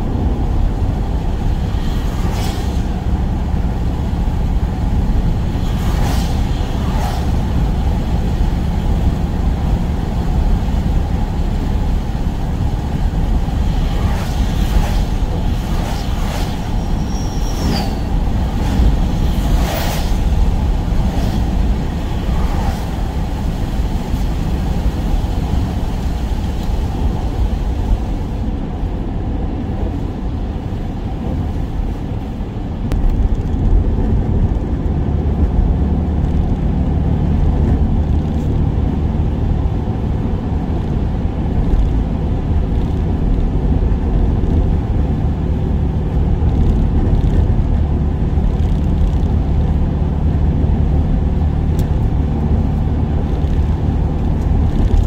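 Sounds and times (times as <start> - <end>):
van engine and road noise: 0.0 - 55.0.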